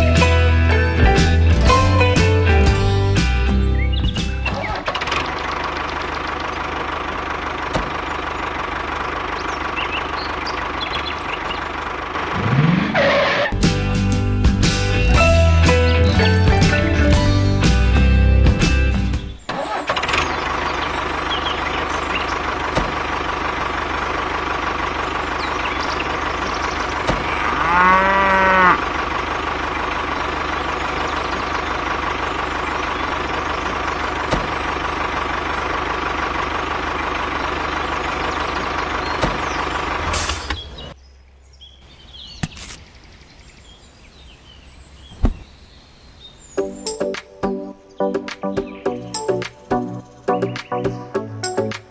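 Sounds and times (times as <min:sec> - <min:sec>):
cow mooing: 0:27.2 - 0:29.0.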